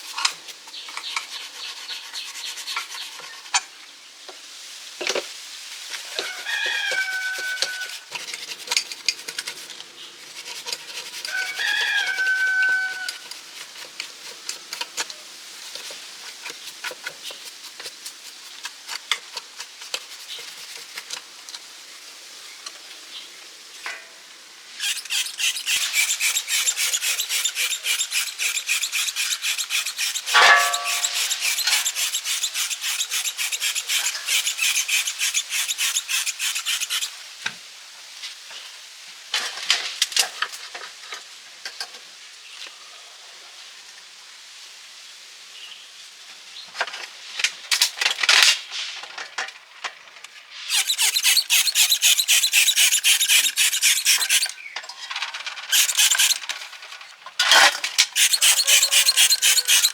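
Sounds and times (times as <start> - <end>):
rooster crowing: 6.1 - 8.0, 11.3 - 13.2
hand sanding strokes: 7.1 - 21.2, 24.8 - 37.2, 50.7 - 54.6, 55.7 - 56.5, 58.1 - 59.9.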